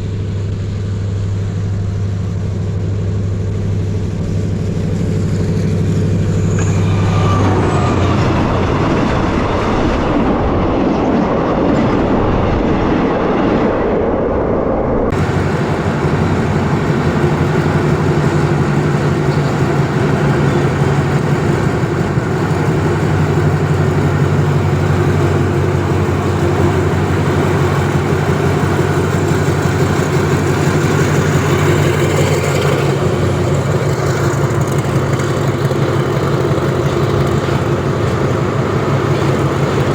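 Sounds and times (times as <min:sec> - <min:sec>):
low diesel engine hum: 0:00.0 - 0:11.5, 0:15.1 - 0:39.9
train carriages rumbling and rattling: 0:00.0 - 0:39.9.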